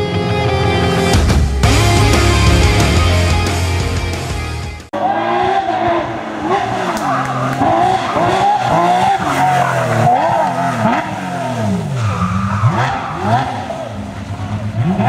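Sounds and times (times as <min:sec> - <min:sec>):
intro music: 0:00.0 - 0:04.9
rally car engine at full throttle: 0:00.0 - 0:15.0.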